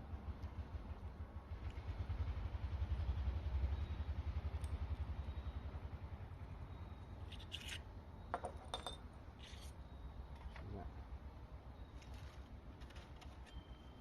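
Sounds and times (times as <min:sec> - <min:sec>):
motor vehicle engine rumble: 0:00.0 - 0:10.4
light metallic clinks: 0:08.3 - 0:09.7.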